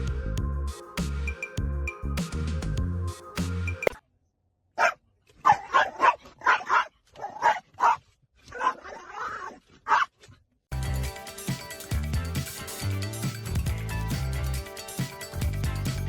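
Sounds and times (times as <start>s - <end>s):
dog barking: 4.8s - 9.0s, 9.8s - 10.1s.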